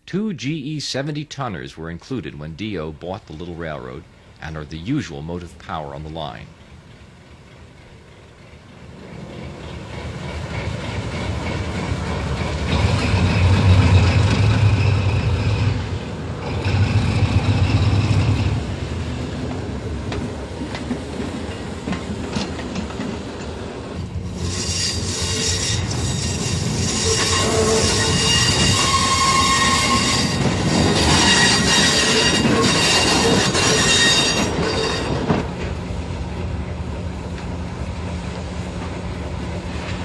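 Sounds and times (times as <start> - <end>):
wheels squealing on rails: 6.2 - 18.8, 21.4 - 35.7.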